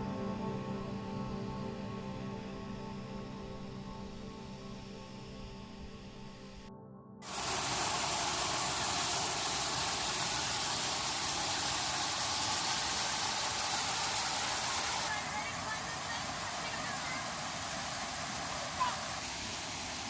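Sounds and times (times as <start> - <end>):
background music: 0.0 - 7.1
waterfall rushing: 7.3 - 20.0.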